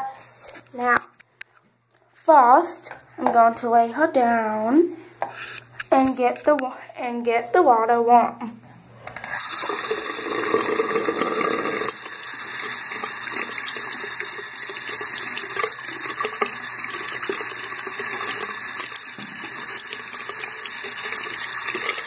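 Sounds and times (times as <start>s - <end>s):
water running from tap: 9.3s - 22.0s.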